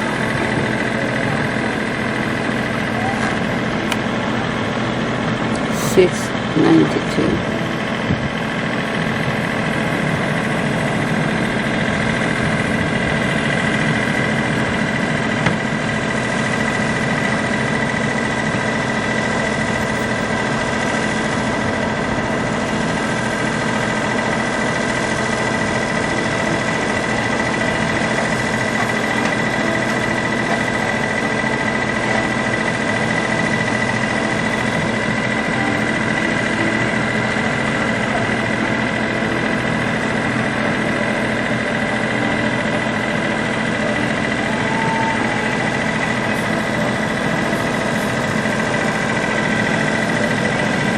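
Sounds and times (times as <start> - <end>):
constant high-pitched tone: 0.0 - 50.9
engine idling hum: 0.0 - 50.9.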